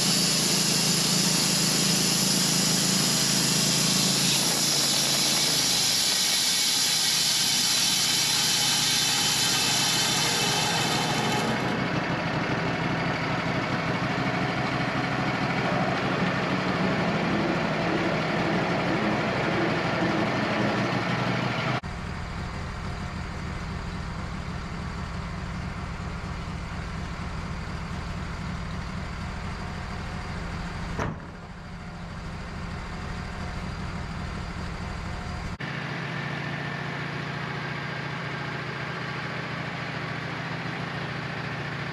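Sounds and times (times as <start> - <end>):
high hiss: 0.0 - 11.6
sawmill motor running: 0.0 - 41.9.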